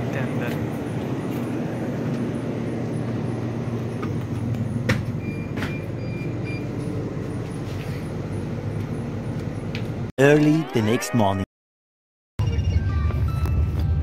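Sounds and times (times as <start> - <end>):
idling train low rumble: 0.0 - 10.1.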